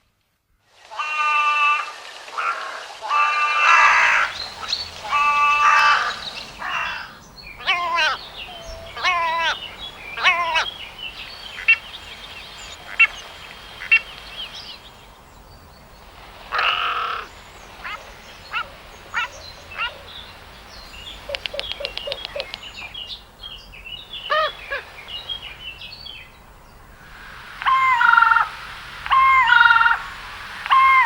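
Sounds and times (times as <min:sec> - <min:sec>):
raven calling: 0:00.9 - 0:14.2, 0:16.5 - 0:20.1, 0:27.0 - 0:31.0
raven clicks: 0:01.2 - 0:13.2, 0:21.2 - 0:22.8, 0:27.0 - 0:31.0.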